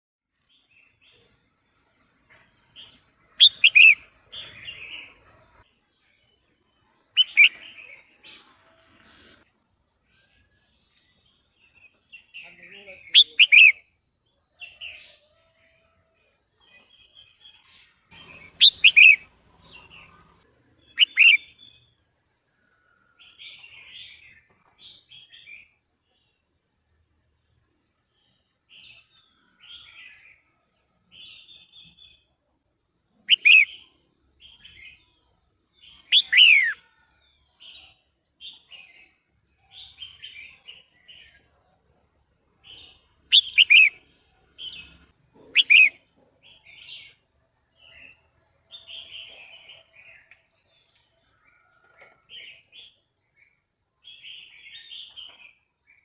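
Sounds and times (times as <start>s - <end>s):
bird chattering notes: 3.4s - 4.0s, 13.2s - 13.8s, 18.2s - 19.2s, 21.0s - 21.4s, 33.3s - 33.7s, 45.5s - 46.0s
bulbul sharp downward calls: 3.4s - 5.1s, 7.1s - 8.4s, 12.2s - 13.9s, 18.1s - 19.3s, 20.8s - 21.8s, 33.2s - 35.1s, 35.9s - 37.0s, 42.6s - 44.0s, 44.6s - 47.1s.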